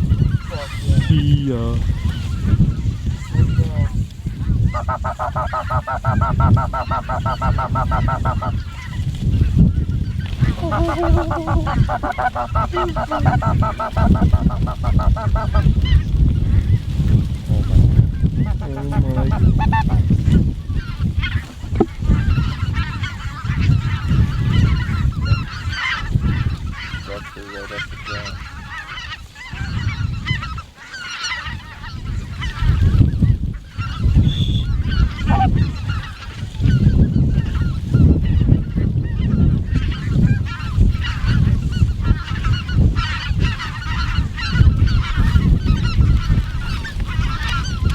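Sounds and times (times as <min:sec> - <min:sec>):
geese honking: 0:00.0 - 0:01.2, 0:01.8 - 0:09.5, 0:10.1 - 0:16.1, 0:18.4 - 0:47.9
steady low rumble: 0:10.4 - 0:22.8.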